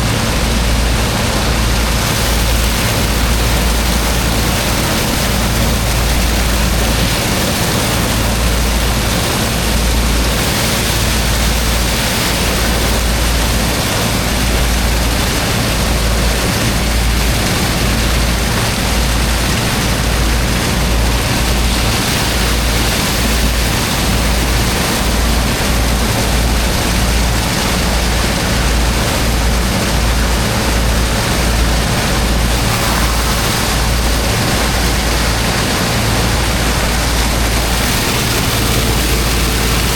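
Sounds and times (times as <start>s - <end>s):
high-pressure water jet rushing: 0.0s - 39.9s
pump engine drone: 0.0s - 39.9s
low rumble: 32.2s - 39.9s.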